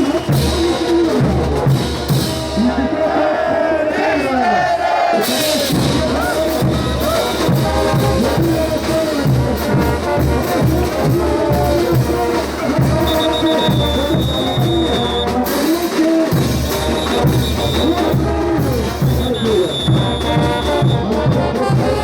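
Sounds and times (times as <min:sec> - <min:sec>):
brass band playing dance music: 0:00.0 - 0:22.0.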